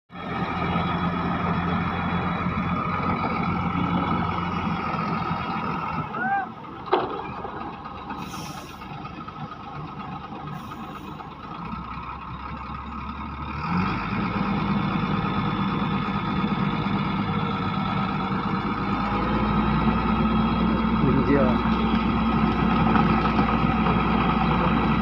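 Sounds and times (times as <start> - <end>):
engine running: 0.1 - 25.0.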